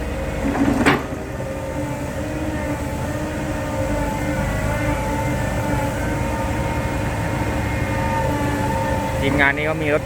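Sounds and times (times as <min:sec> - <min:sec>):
truck diesel engine under load: 0:00.0 - 0:10.0.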